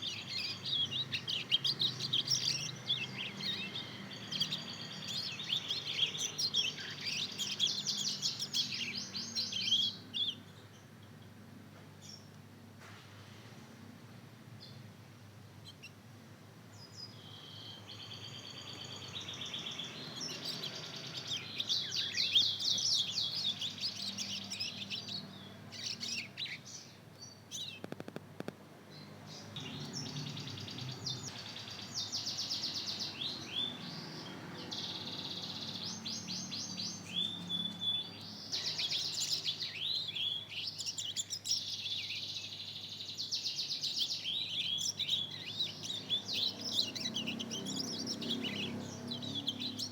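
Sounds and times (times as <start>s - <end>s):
young bird twittering song: 0.0s - 11.4s, 16.7s - 28.2s, 28.9s - 49.9s.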